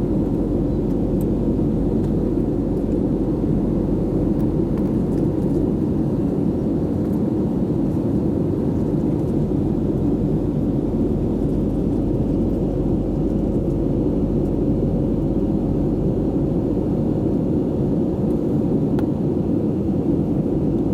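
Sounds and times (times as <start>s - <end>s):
airliner cabin engine noise: 0.0s - 20.9s.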